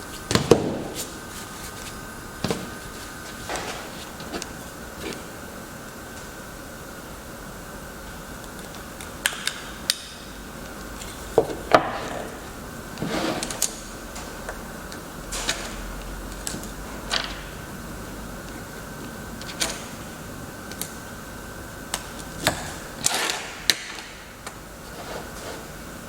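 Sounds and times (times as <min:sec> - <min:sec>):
scraping rustle: 0:02.8 - 0:05.3, 0:24.8 - 0:25.8.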